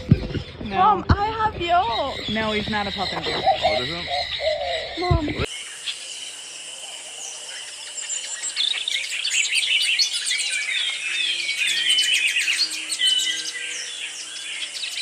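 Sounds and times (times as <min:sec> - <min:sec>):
parrots chirping and whistling: 0:01.6 - 0:05.6.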